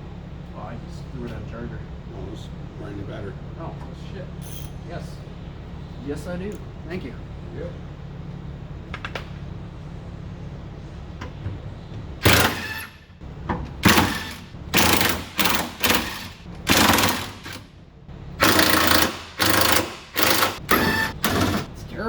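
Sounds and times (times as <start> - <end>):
impact wrench bursts: 12.2 - 17.7, 18.4 - 21.7.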